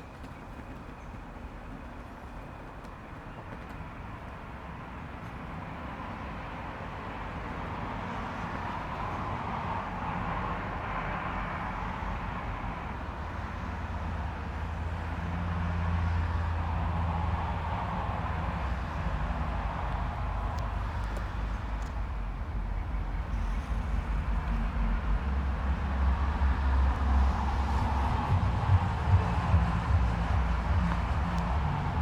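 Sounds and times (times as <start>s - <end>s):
low rumble and hiss: 19.3s - 32.0s
low hum: 20.0s - 32.0s.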